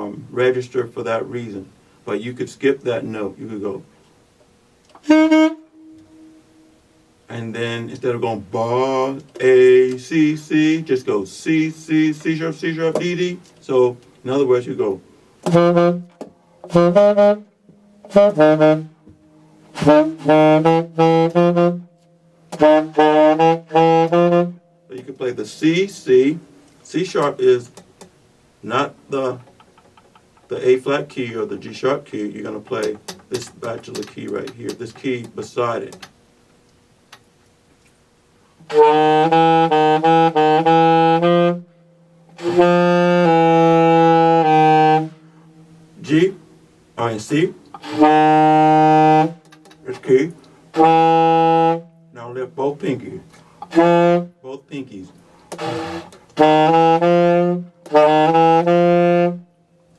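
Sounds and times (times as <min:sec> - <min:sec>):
saxophone playing short notes: 0:05.0 - 0:13.9, 0:14.8 - 0:27.7, 0:38.6 - 0:46.4, 0:47.7 - 0:59.5.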